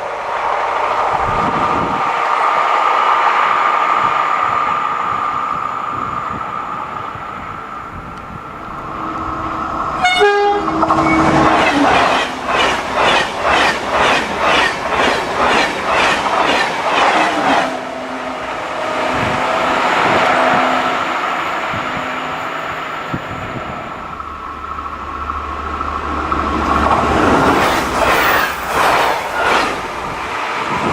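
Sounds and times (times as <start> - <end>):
train horn blast: 8.7 - 12.0
train wheels clacking: 8.7 - 17.8, 24.1 - 30.9.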